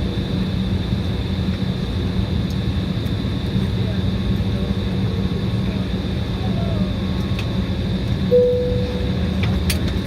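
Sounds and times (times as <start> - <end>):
airliner cabin hum: 4.6 - 10.0
electronic cabin chime: 8.3 - 9.5.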